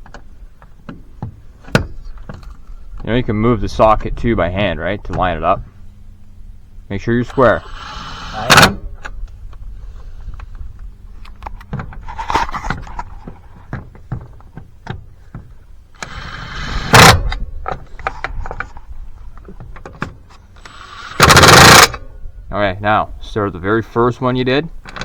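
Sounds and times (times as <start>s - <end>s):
cordless drill running lug nuts: 7.1s - 9.1s, 15.9s - 18.8s, 20.3s - 22.1s.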